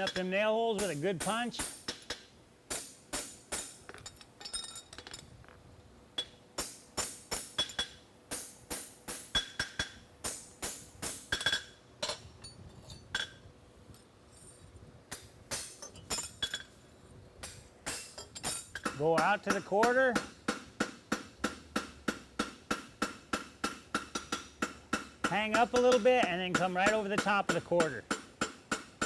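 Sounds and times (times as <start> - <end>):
hammer striking horseshoe on anvil: 0.0 - 4.9, 6.2 - 12.2, 17.4 - 29.0.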